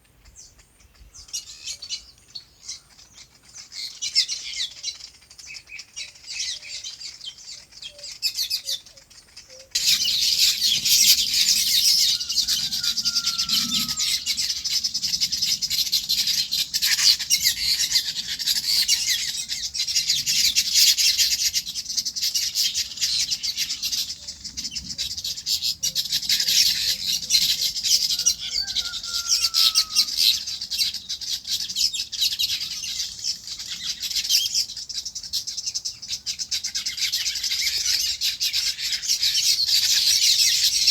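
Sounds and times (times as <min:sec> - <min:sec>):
chorus of small birds chirping: 0:00.0 - 0:40.9.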